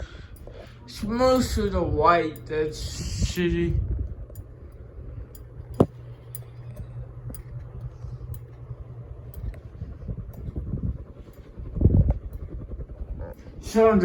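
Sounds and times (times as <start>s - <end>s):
ceiling fan humming and ticking: 0.0s - 14.0s.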